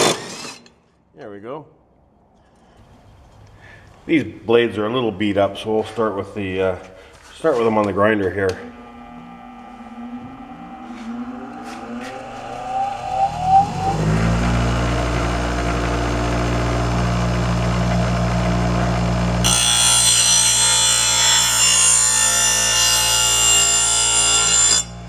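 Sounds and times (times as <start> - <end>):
grinder motor whining: 8.1 - 25.0.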